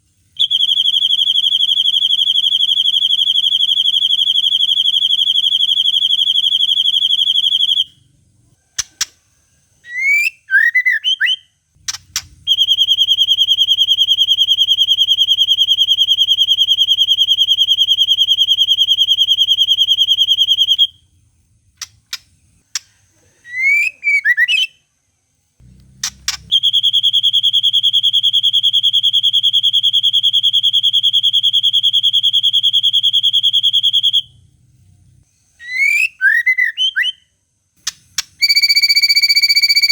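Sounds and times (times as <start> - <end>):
sharp clicks: 8.8 - 9.2, 11.8 - 12.5, 21.8 - 23.0, 25.8 - 26.6, 37.8 - 38.5.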